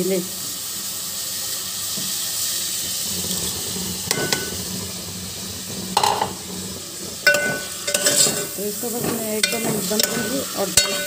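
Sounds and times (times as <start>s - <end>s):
food sizzling in a metal pot: 0.0s - 11.0s
metal spoon clinking against pot: 4.1s - 4.5s, 7.2s - 11.0s.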